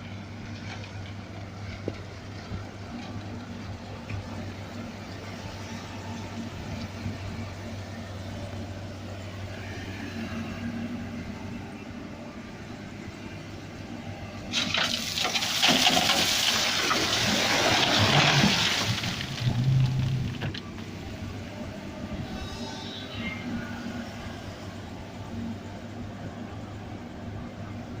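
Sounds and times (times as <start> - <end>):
truck engine humming: 16.7 - 28.0.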